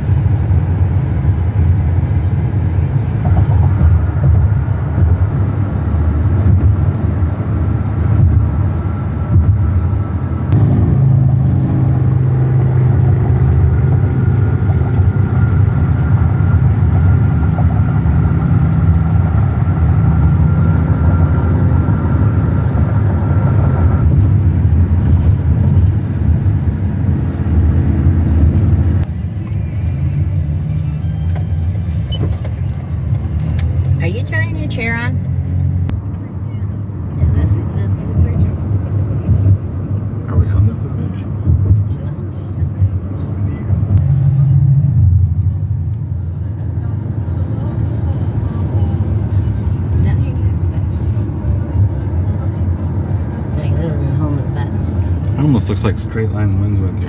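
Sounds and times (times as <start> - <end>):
car cabin road and engine rumble: 0.0 - 57.0
car radio music: 13.0 - 35.8.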